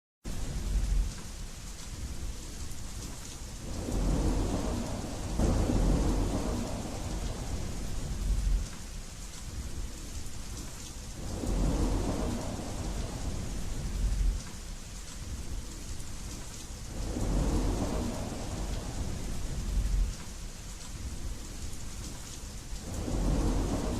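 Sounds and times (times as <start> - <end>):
low rolling thunder: 0.3 - 23.9
steady rain hiss: 0.3 - 23.9.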